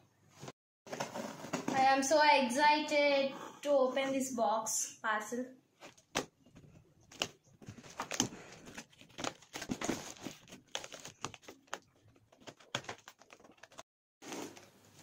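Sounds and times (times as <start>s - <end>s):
packaging crinkling and rustling: 7.0s - 15.0s.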